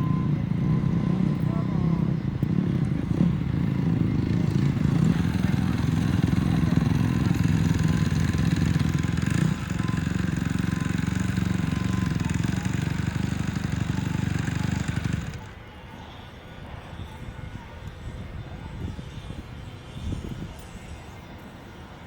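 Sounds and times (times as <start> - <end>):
dirt bike engines running hard: 0.0 - 15.6.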